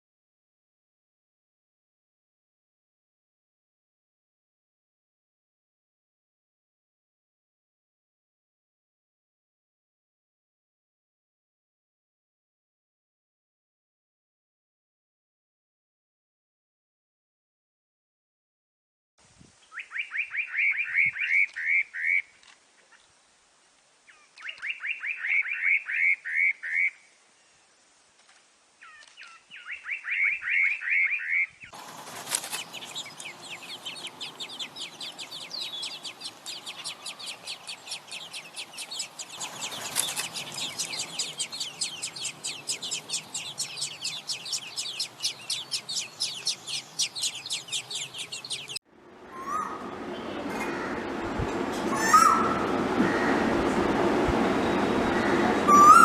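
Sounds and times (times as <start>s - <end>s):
background hiss: 19.2s - 29.9s, 31.8s - 48.8s
bird singing falling notes: 24.1s - 26.1s, 32.4s - 48.8s
fast bird chirping: 28.8s - 48.8s.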